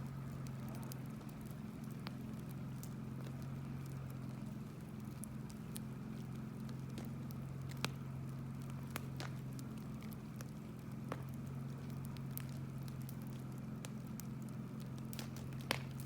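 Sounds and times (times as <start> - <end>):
bonfire crackling and popping: 0.0 - 16.0.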